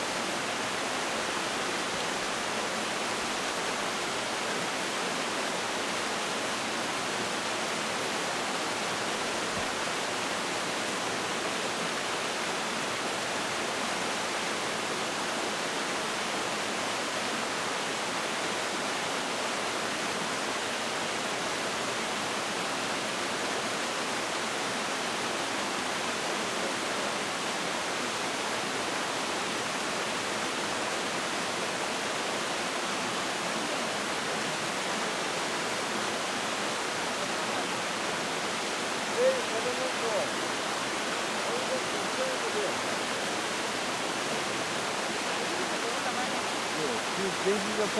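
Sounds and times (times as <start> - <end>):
stream rushing over rocks: 0.0 - 47.9.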